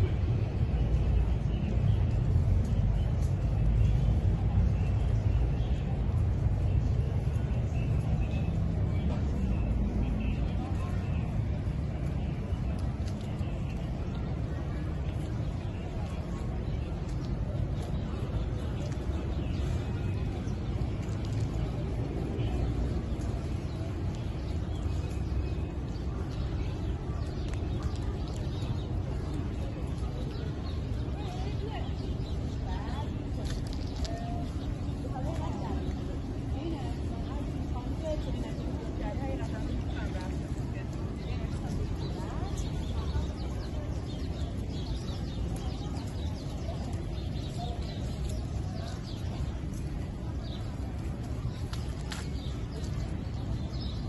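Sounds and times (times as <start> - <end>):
small birds chirping: 0.0 - 54.0
traffic rumble: 0.0 - 54.0.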